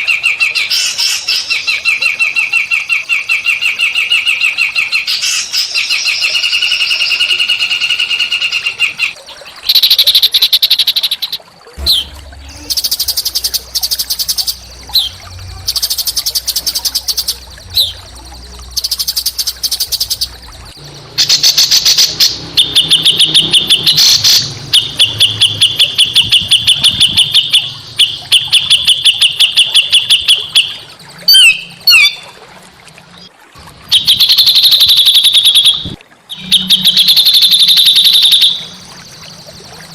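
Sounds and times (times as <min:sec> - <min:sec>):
songbird trilling: 0:00.0 - 0:32.2, 0:33.9 - 0:39.9
low hum: 0:11.7 - 0:28.4.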